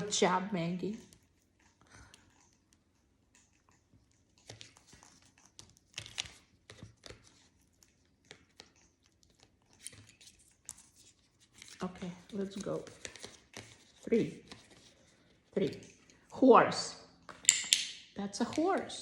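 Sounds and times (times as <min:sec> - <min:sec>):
paper cards rustling: 0:04.4 - 0:16.0.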